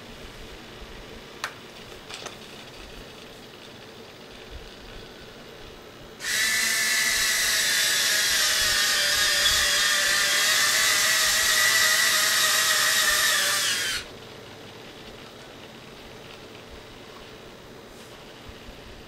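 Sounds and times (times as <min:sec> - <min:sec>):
small electric motor whining: 0:06.2 - 0:14.1.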